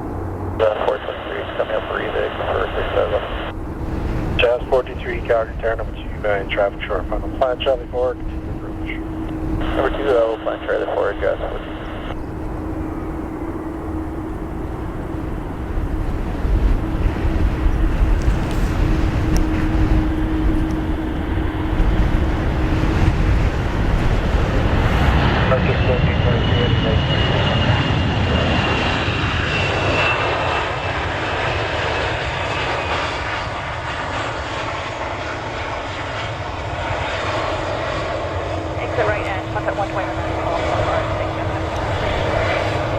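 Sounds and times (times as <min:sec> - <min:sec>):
low rumbling din: 0:00.0 - 0:26.7
aircraft engine hum: 0:00.0 - 0:42.9
thin high whine: 0:08.3 - 0:22.6.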